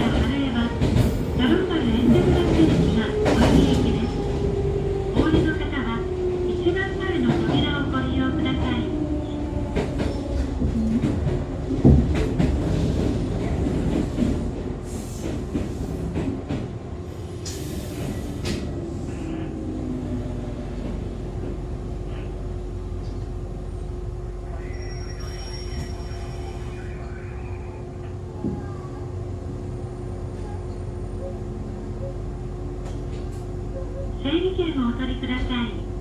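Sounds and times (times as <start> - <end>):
train low rumble: 0.0 - 36.0
faint high squealing tones: 24.5 - 27.8.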